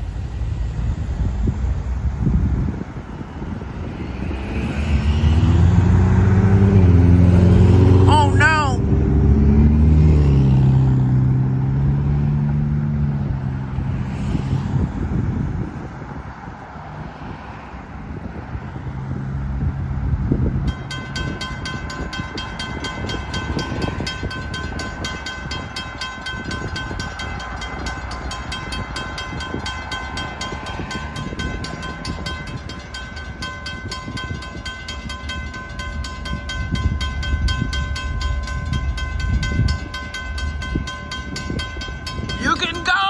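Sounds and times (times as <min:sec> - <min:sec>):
freight train rumble: 0:00.0 - 0:11.1, 0:11.8 - 0:16.4, 0:19.4 - 0:43.0
railroad crossing bell ringing: 0:04.8 - 0:08.9, 0:20.5 - 0:43.0.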